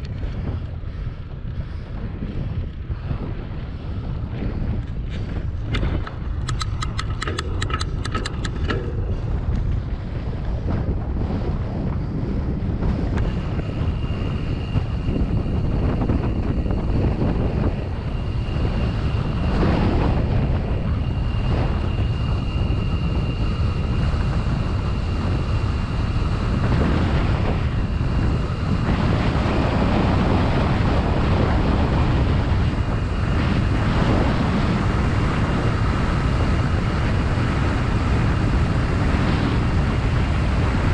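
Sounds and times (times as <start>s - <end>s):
wind rumbling on microphone: 0.0s - 40.9s
quick ticking: 5.8s - 9.6s.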